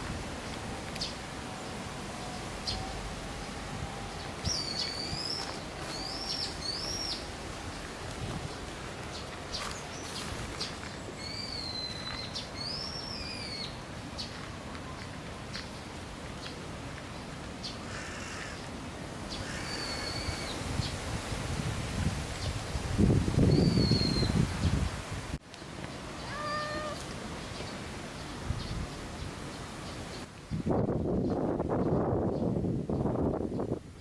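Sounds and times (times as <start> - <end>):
steady background hiss: 0.0 - 30.6
bird whistled calls: 11.2 - 13.7, 19.5 - 20.6, 23.5 - 24.4.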